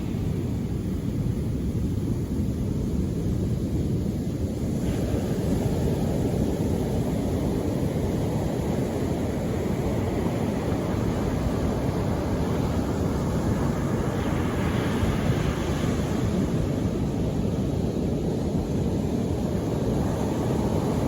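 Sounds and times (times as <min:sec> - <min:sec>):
sea surf rushing: 0:04.8 - 0:21.0.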